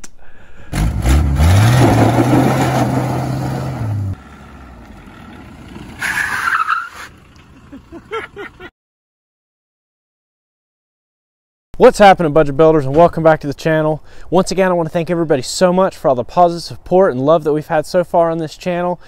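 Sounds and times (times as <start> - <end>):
car engine revving: 0.7 - 7.9
pickup truck driving up: 0.7 - 8.7.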